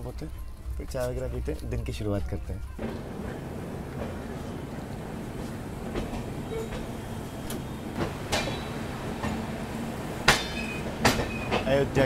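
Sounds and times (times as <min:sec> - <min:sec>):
wheels rumbling on track: 0:00.0 - 0:12.0
sharp clanks: 0:05.9 - 0:09.5, 0:10.1 - 0:12.0.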